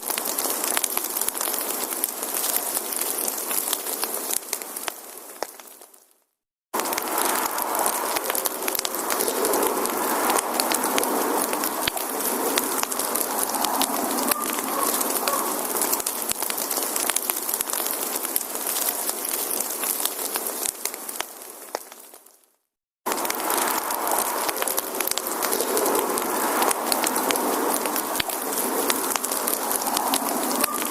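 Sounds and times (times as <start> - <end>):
wood fire crackling: 0.0 - 6.2, 6.8 - 30.9.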